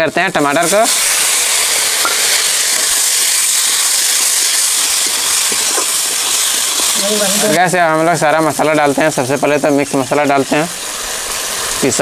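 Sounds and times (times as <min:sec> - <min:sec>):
tomatoes and onions sizzling in oil: 0:00.0 - 0:12.0.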